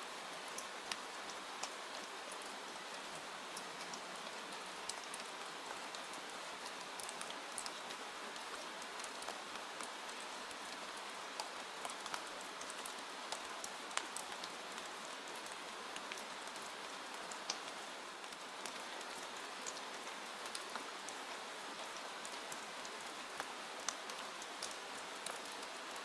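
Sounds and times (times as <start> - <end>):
rain pattering on window: 0.2 - 26.0.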